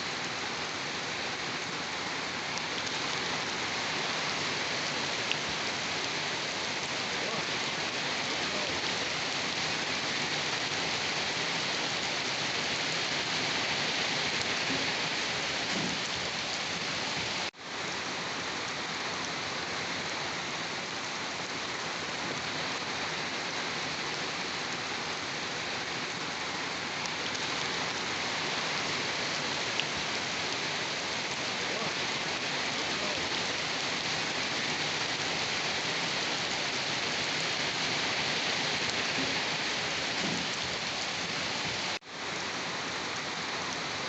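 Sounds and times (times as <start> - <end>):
heavy rain falling: 0.0 - 44.0.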